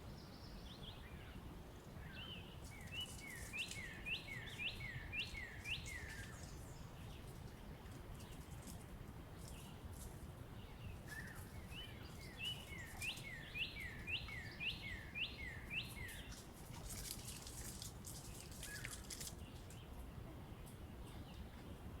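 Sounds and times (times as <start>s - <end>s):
faint ticks or rustles: 2.6s - 4.6s, 5.4s - 10.4s, 16.0s - 20.0s.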